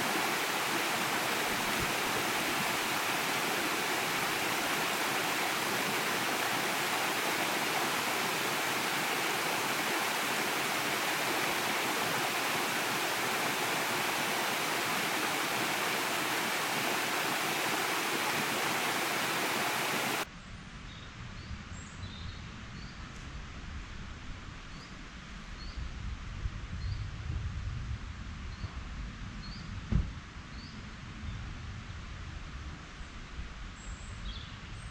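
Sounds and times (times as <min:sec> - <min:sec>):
rushing water: 0:00.0 - 0:20.3.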